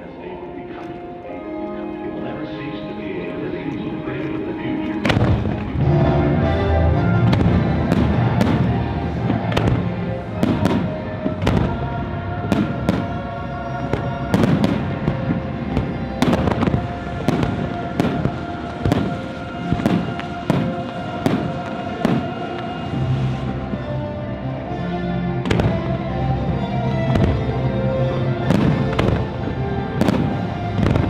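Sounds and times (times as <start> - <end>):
music over loudspeakers: 0.0 - 31.0
fireworks bangs: 5.0 - 23.8, 25.4 - 25.9, 28.4 - 31.0.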